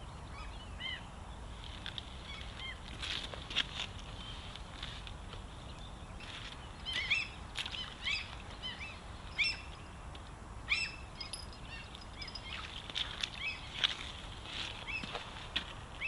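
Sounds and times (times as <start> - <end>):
low background hiss: 4.0 - 16.0
small bird chirping: 10.7 - 12.7.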